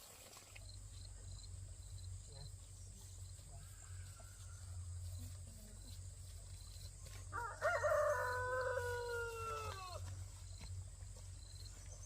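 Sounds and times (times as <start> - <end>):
rooster crowing: 7.3 - 10.0.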